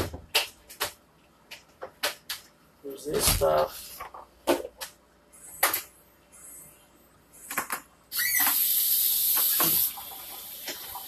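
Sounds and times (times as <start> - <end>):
faucet water running: 8.1 - 11.0.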